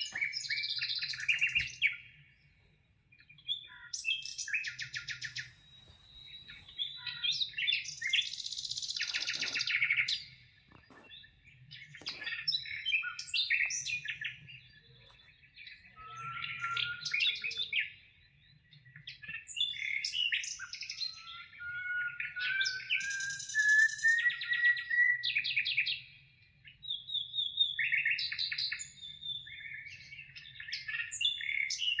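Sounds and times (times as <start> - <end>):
birds chirping and trilling: 0.0 - 32.0
rising whistled bird note: 16.0 - 17.7.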